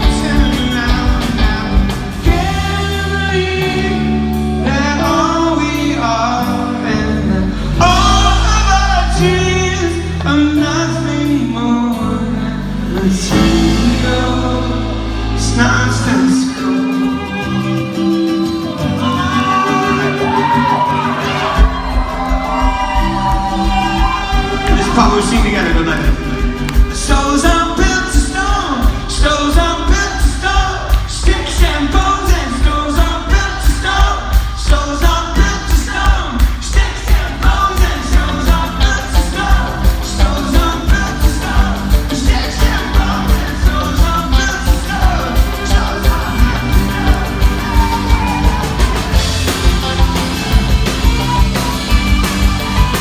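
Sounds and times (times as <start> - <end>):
live rock band playing loudly: 0.0 - 53.0
singer and audience singing: 0.0 - 53.0
kick-drum beat: 21.5 - 53.0.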